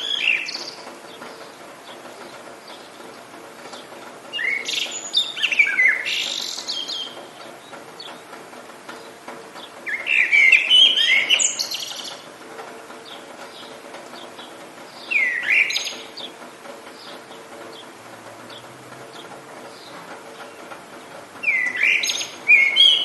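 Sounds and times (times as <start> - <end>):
bird chirps: 0.0 - 1.5, 4.3 - 7.3, 9.6 - 12.2, 13.0 - 16.4, 21.4 - 23.0
light rain hiss: 0.0 - 23.0
songbirds singing: 0.0 - 23.0.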